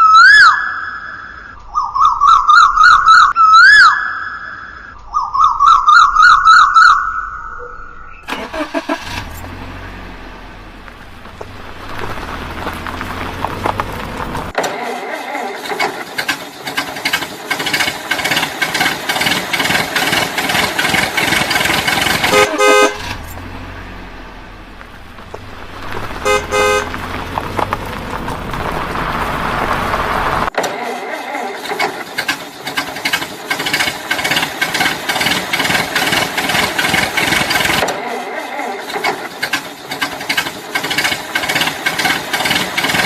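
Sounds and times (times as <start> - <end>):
low engine hum: 8.3 - 14.6, 17.3 - 30.5
dense clattering noise: 10.8 - 14.8, 15.4 - 23.5, 24.4 - 38.1, 38.8 - 43.0
vehicle horn honking: 22.2 - 23.3, 26.1 - 27.1.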